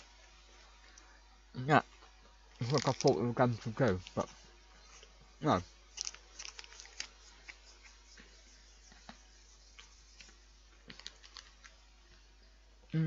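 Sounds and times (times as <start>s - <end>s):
crunchy biscuit chewing: 2.6s - 3.2s, 5.9s - 7.6s, 9.8s - 11.8s.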